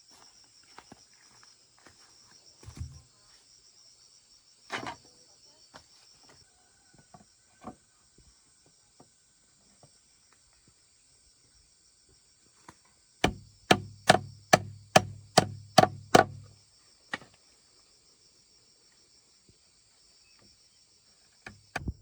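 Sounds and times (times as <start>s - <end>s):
insects chirping trill: 0.0s - 22.0s
knocks and thumps: 2.6s - 3.0s, 13.2s - 16.5s.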